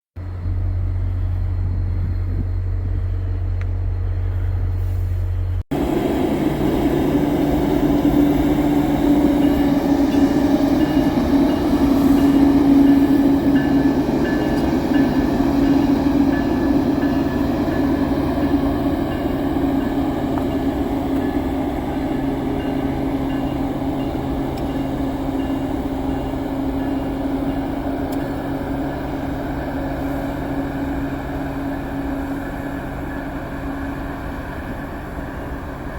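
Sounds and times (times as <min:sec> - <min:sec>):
low hum: 0:00.2 - 0:27.1
train passing with drone and whine: 0:00.2 - 0:35.9.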